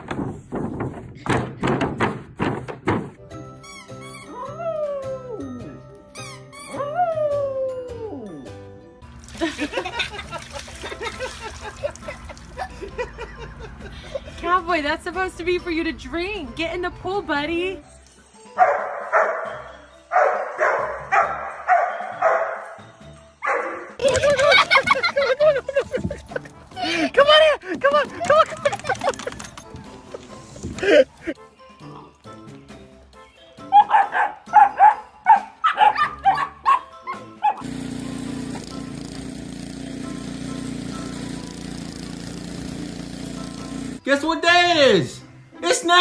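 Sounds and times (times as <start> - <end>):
dog barking: 18.6 - 22.8, 23.4 - 24.0, 33.7 - 37.6.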